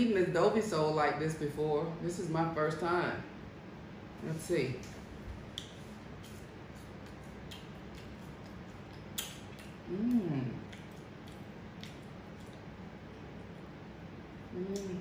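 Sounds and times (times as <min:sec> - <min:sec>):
crunchy chewing: 0:05.5 - 0:13.7
person humming mmm: 0:09.8 - 0:10.8, 0:14.5 - 0:15.0.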